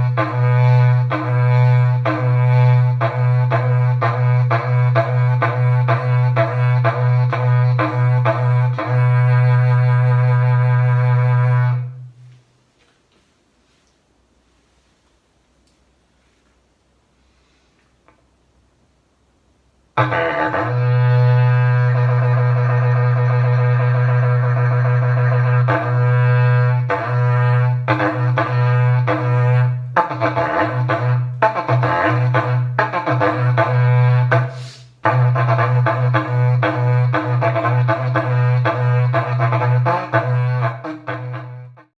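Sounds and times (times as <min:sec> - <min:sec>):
ox-horn trumpet blowing: 0:20.0 - 0:41.9.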